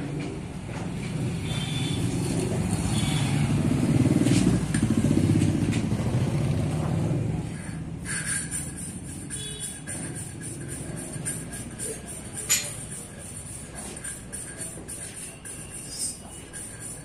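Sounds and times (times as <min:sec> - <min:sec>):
motorcycle engine running: 0:01.5 - 0:11.8.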